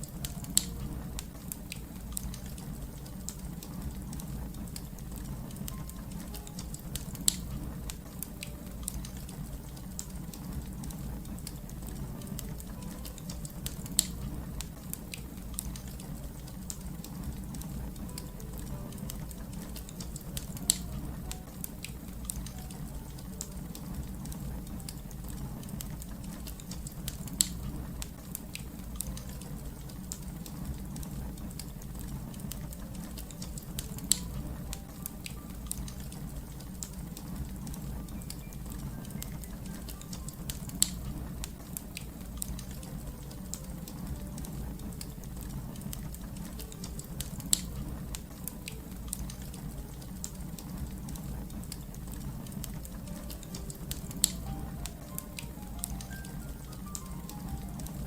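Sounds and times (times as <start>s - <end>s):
fire crackling: 0.0s - 58.0s
sharp pops of burning wood: 5.6s - 11.6s, 19.5s - 21.4s, 40.5s - 42.2s.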